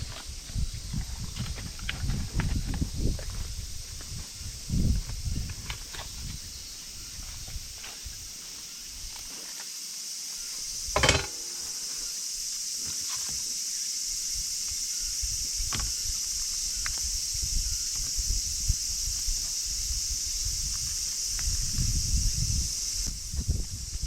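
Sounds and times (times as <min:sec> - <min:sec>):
insects chirring: 0:00.0 - 0:24.0
knocks and rustles: 0:11.0 - 0:11.8.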